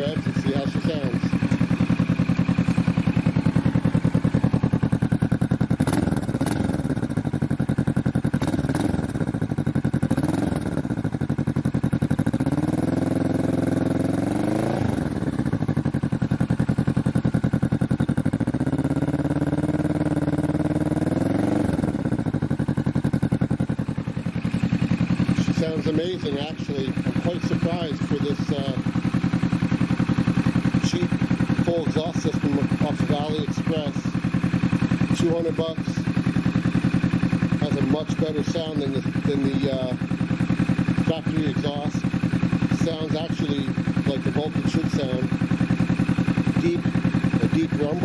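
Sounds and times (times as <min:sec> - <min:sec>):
motorcycle engine idling and revving: 0:00.0 - 0:48.0.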